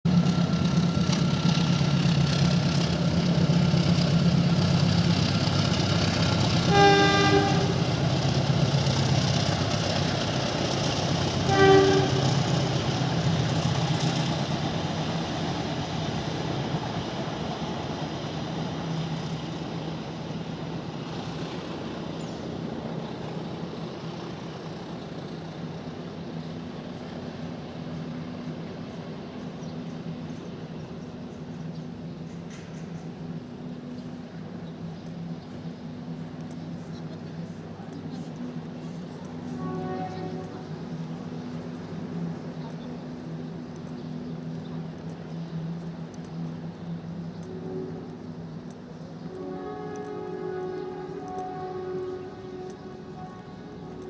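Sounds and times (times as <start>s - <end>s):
train rumbling past: 0.1s - 54.0s
train horn: 6.5s - 8.1s, 11.2s - 13.1s, 37.8s - 42.3s, 47.4s - 54.0s.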